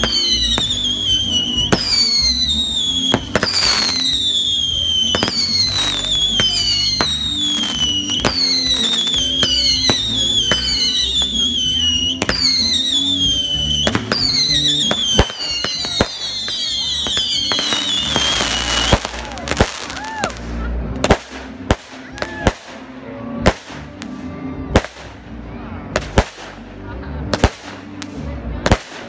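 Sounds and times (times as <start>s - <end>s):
whistling fireworks: 0.0s - 20.4s
firework cracks: 0.0s - 22.9s, 23.5s - 24.2s, 24.8s - 25.3s, 26.0s - 26.7s, 27.3s - 29.0s.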